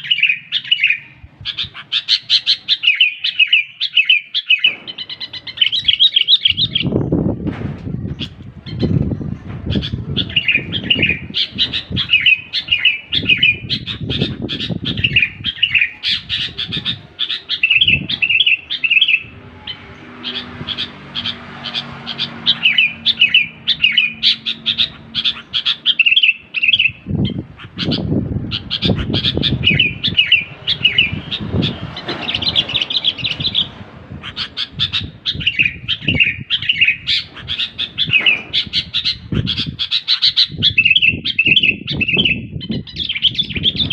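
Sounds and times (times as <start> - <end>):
bird chirping song: 0.0 - 7.4, 8.0 - 43.9
low thumping sounds: 6.6 - 12.2.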